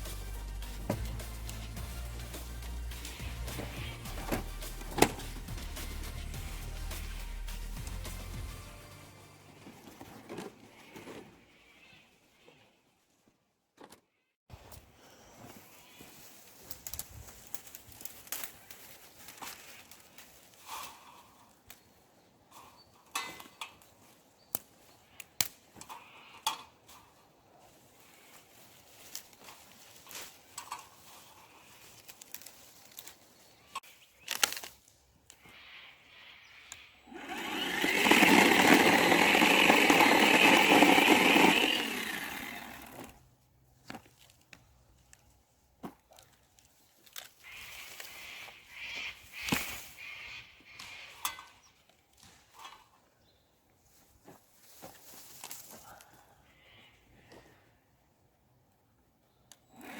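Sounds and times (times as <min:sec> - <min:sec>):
branches cracking and snapping: 0:16.4 - 0:21.9, 0:23.3 - 0:25.9, 0:28.5 - 0:35.4, 0:37.2 - 0:43.2, 0:46.0 - 0:48.2
loud steady rasping: 0:37.1 - 0:43.2.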